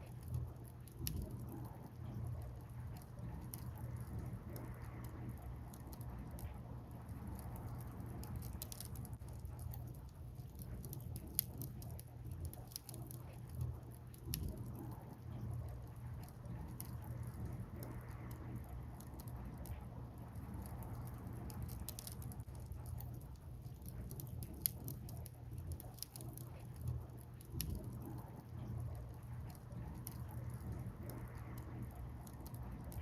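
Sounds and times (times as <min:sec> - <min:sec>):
wood fire crackling: 0:00.0 - 0:33.0
loud snap of fire: 0:16.2 - 0:23.2.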